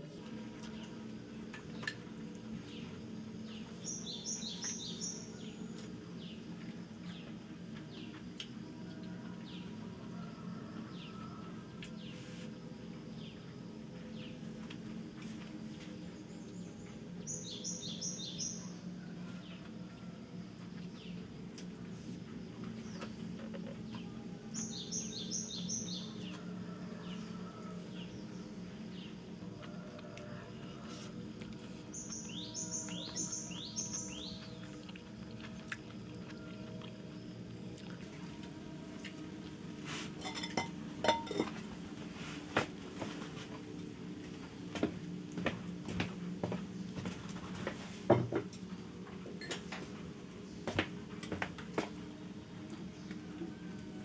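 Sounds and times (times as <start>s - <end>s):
steady low hum: 0.0s - 54.0s
small birds chirping: 2.6s - 6.4s, 24.5s - 26.5s, 31.8s - 36.8s.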